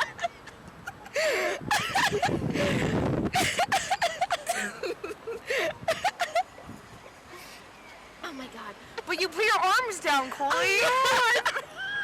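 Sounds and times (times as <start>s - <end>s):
women laughing: 0.0s - 6.8s, 10.2s - 12.0s.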